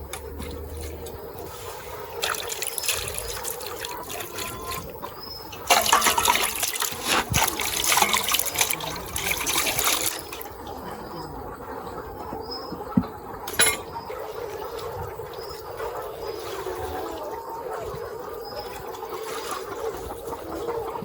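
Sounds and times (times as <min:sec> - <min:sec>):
tap water running and splashing: 0:02.2 - 0:10.7.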